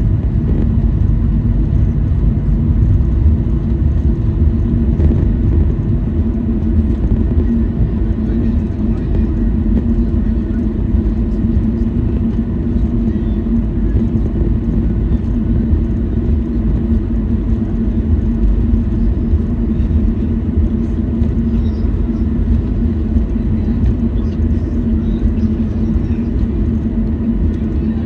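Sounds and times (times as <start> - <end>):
aircraft cabin rumble and hum: 0.0 - 28.0.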